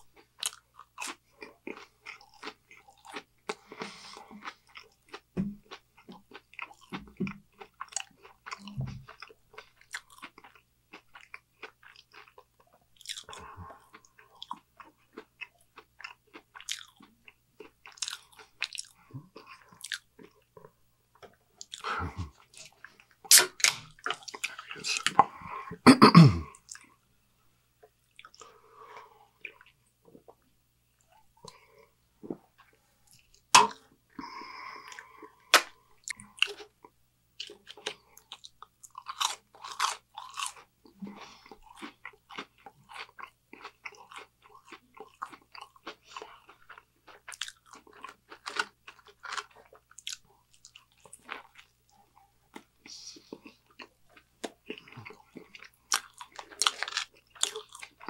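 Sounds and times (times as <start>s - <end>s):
wet chewing clicks and smacks: 4.4s - 20.7s, 21.6s - 21.9s, 41.6s - 58.0s
crunching mouth noises: 21.6s - 26.9s, 31.0s - 58.0s.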